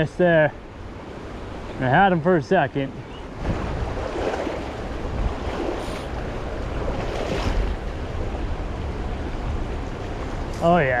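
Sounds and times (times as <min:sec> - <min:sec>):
river water rushing: 0:00.0 - 0:11.0
wind rumbling on microphone: 0:02.9 - 0:11.0.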